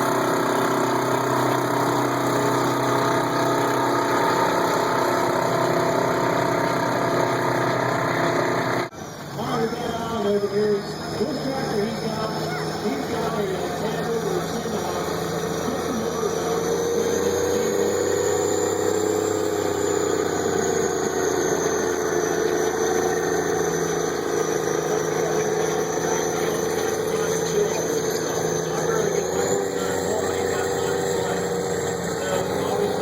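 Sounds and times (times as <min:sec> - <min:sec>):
tractor engine running hard: 0:00.0 - 0:33.0.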